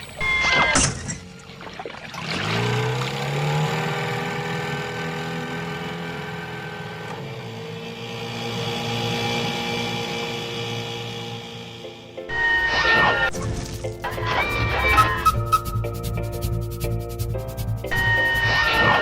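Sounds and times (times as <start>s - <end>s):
cartoon engine hum: 14.1s - 16.4s.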